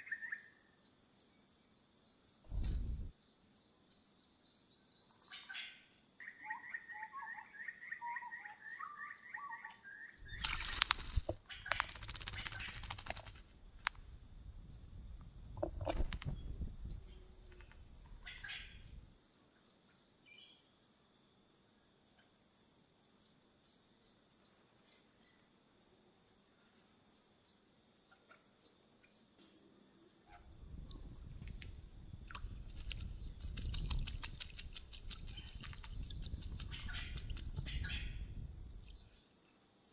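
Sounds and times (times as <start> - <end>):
high-pitched bird chirp: 30.3 - 39.1
warbled bird phrase: 32.3 - 38.9.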